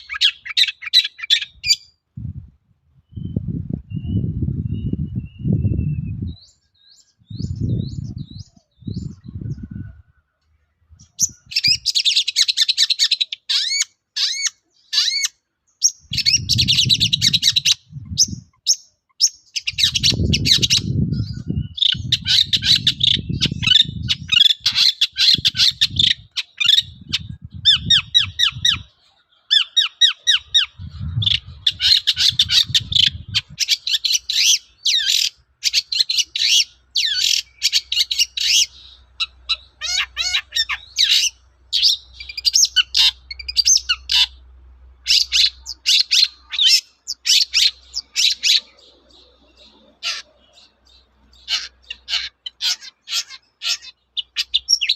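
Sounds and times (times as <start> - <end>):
bird chattering song: 0.0 - 2.0, 3.0 - 54.9
low rumbling: 2.2 - 6.5, 7.2 - 11.8, 16.1 - 18.5, 30.4 - 33.6.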